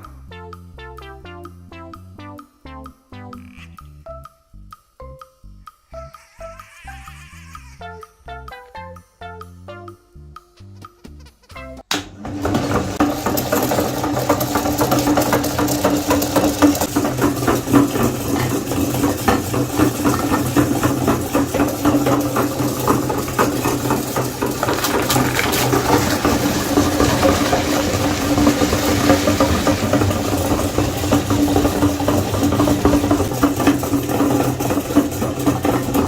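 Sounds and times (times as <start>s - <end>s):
electric meat grinder humming: 11.9s - 36.0s
fine crackling of ground food: 24.5s - 31.6s.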